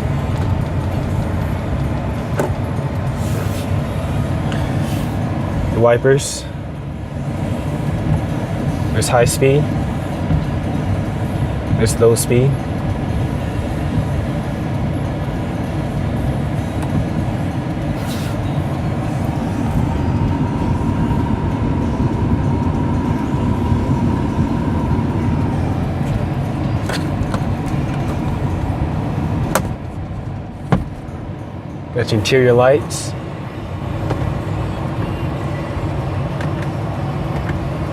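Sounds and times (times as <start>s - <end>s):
rumbling inside truck cab: 0.0s - 37.9s
windshield wipers: 9.9s - 11.0s.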